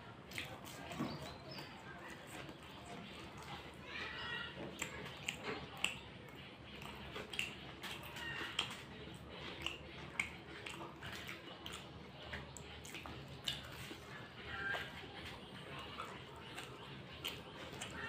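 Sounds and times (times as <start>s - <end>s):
chewing fried snacks: 0.0s - 18.0s
sharp mouth clicks: 9.6s - 11.8s.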